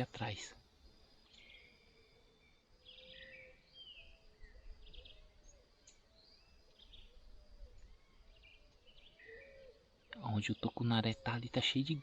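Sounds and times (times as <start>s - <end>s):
small birds chirping and trilling: 0.0s - 12.0s
low drawn-out bird whistle: 1.4s - 10.0s.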